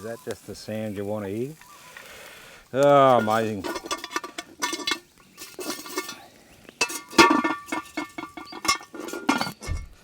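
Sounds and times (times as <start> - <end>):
cast iron pot clanking: 3.0 - 10.0.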